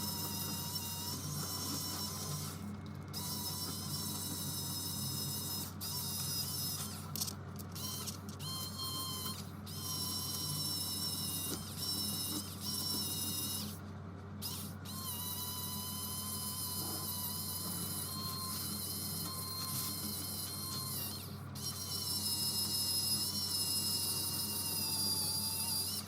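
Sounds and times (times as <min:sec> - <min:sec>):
machine humming: 0:00.0 - 0:13.8
high machine whine: 0:00.0 - 0:26.0.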